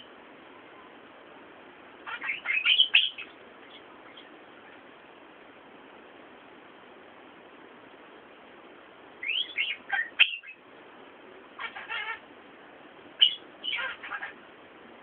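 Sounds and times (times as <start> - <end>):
bird chirping: 2.0 - 4.9, 9.2 - 10.6, 11.6 - 12.2, 13.2 - 14.4.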